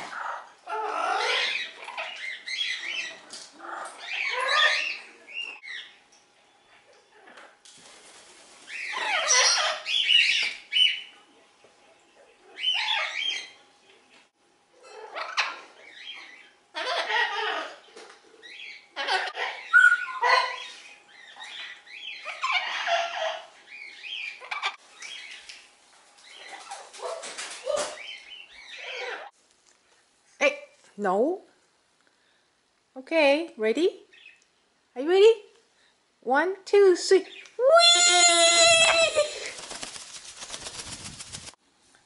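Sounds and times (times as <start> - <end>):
parrots squawking and chattering: 0.0 - 6.1, 8.7 - 11.1, 12.4 - 13.6, 14.8 - 29.4.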